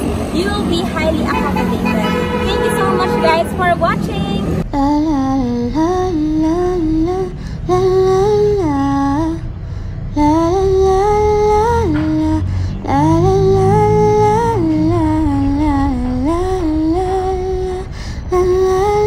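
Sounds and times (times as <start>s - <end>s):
hummed melody: 4.4s - 19.0s.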